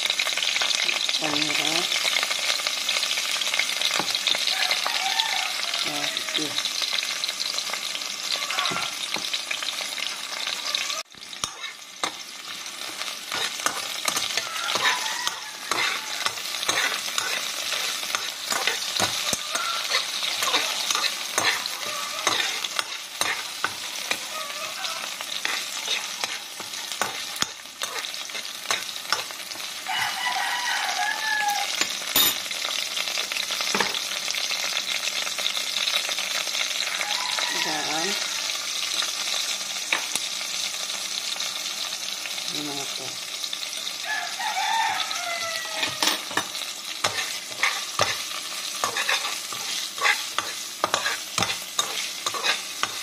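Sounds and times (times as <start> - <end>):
vegetables sizzling in oil: 0.0 - 53.0
metal spoon scraping pan: 11.3 - 12.2, 12.8 - 30.1, 45.7 - 53.0.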